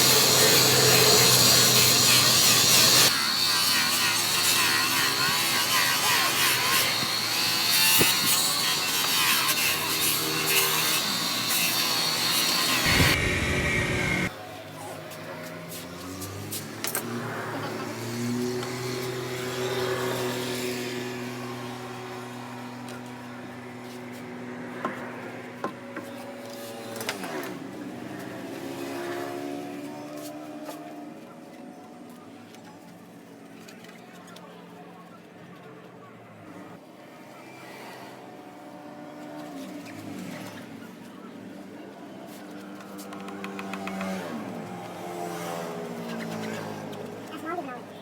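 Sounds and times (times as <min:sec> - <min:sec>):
motor humming: 0:12.8 - 0:14.3.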